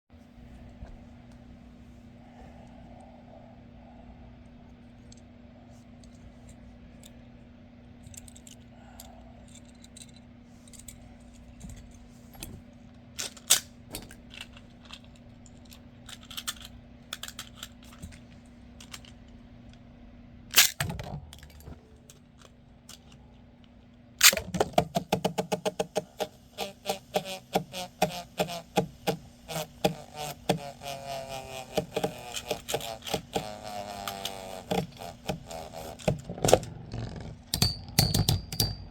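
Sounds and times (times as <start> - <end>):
steady low hum: 0.1 - 38.9
spinning tops clattering together: 30.0 - 36.1.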